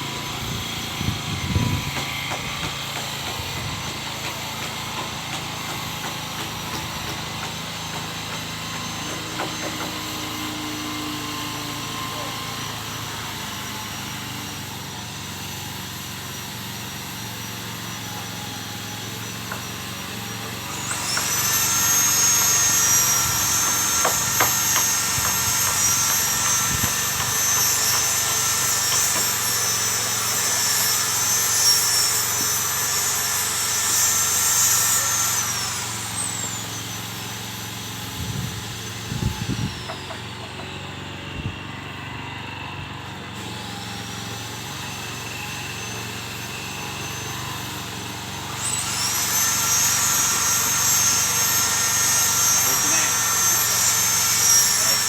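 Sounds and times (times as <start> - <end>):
motor humming: 20.2 - 42.0.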